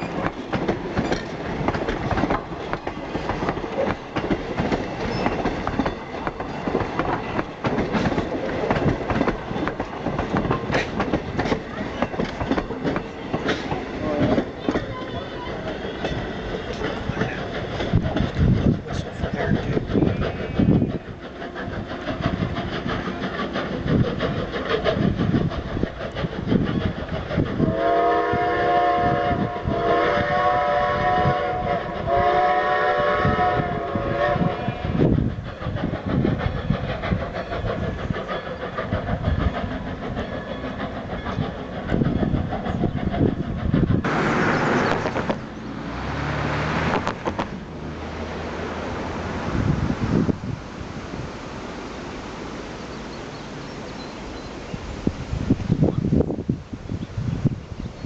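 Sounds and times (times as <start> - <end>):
steam locomotive exhaust beating: 0.0 - 58.0
steady rushing noise: 41.6 - 58.0.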